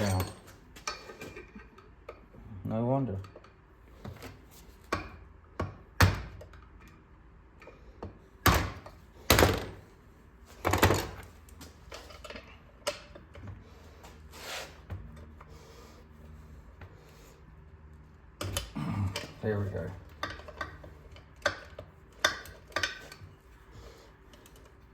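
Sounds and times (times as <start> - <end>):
tools clanking on metal: 0.0 - 2.2, 18.4 - 23.4.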